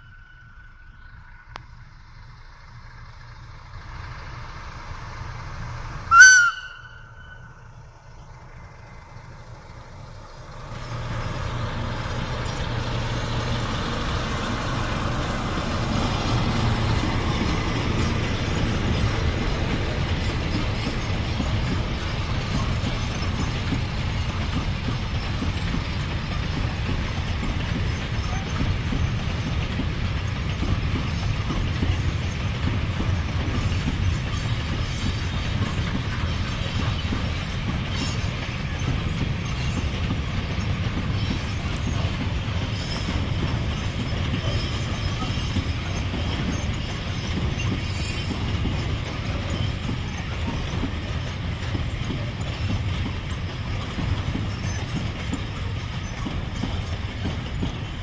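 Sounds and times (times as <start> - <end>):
train horn blast: 6.1 - 7.6.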